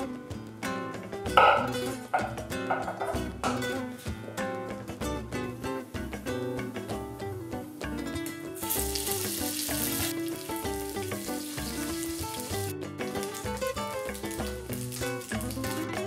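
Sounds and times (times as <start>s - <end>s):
acoustic guitar music: 0.0s - 16.0s
octopus sizzling in hot oil: 5.9s - 16.0s.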